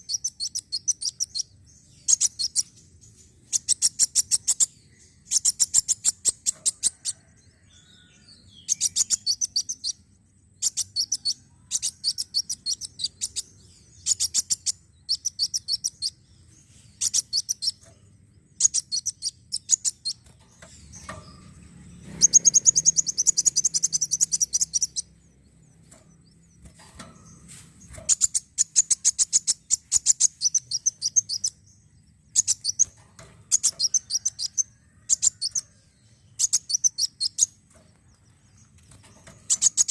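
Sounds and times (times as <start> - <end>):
bird trill: 0.0 - 39.9
sunbird singing: 0.0 - 39.9.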